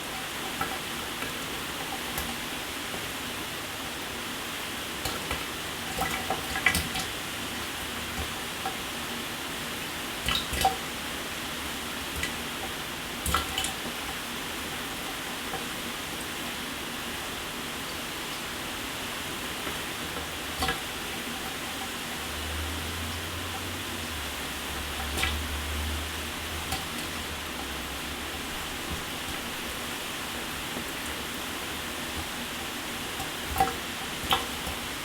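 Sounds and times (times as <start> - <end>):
shower water running: 0.0 - 35.0
water splashes: 19.7 - 35.0.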